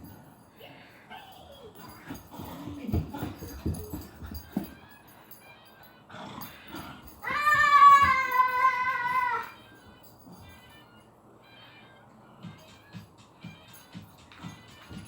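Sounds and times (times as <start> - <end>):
dog howling whine: 4.7 - 9.7.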